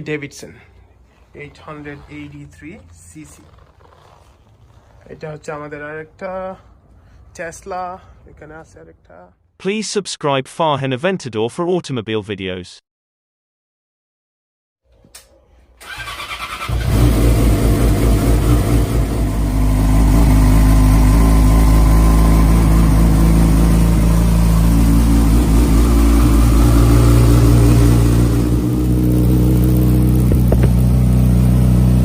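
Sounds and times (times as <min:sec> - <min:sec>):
motorcycle engine starting and idling: 0:15.2 - 0:32.0.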